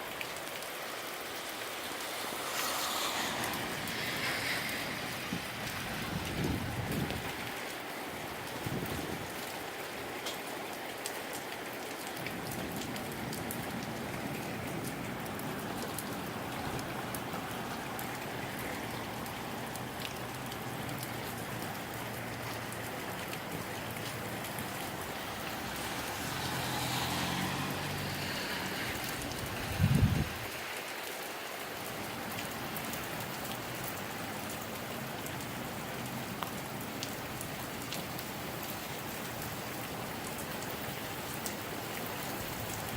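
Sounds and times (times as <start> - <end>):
rain falling: 0.0 - 42.9
gusty wind: 1.6 - 9.4, 24.2 - 30.7.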